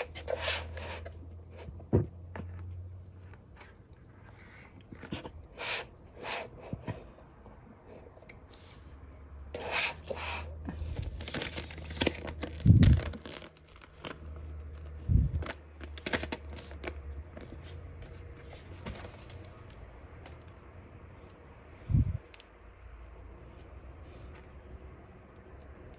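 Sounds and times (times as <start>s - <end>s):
crinkling scraping handling noise: 0.0s - 7.2s, 9.5s - 20.6s.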